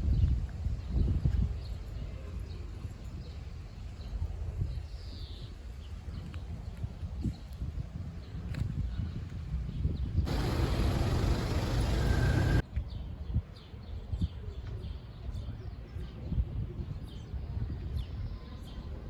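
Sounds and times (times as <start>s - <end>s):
loud steady hiss: 10.3s - 12.6s
low background rumble: 10.3s - 12.6s
small birds chirping: 10.3s - 12.6s.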